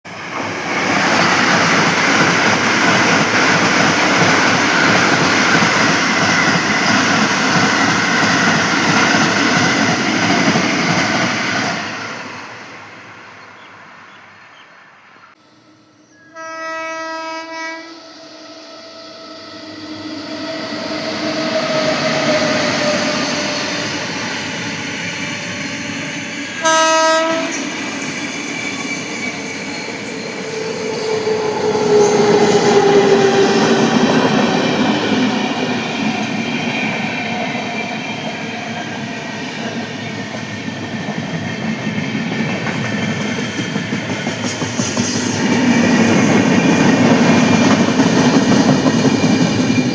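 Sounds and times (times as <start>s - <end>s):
train running on rails: 0.1s - 49.9s
train horn: 16.0s - 19.2s, 26.5s - 27.8s.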